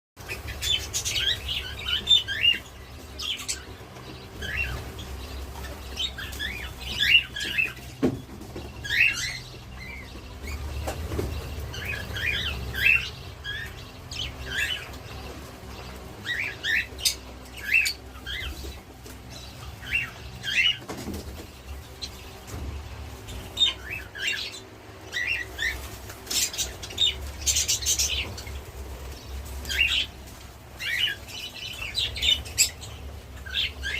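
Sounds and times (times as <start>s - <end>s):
budgerigars chirping: 0.2s - 33.9s.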